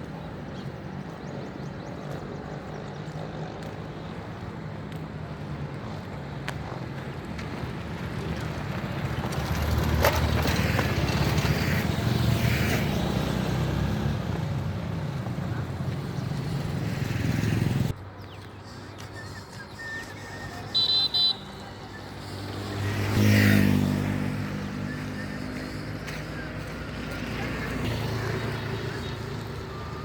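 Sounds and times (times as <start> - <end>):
road traffic: 0.0 - 30.0
vehicle passing close: 7.6 - 18.0, 21.5 - 30.0
short high horn beeps: 20.6 - 21.7.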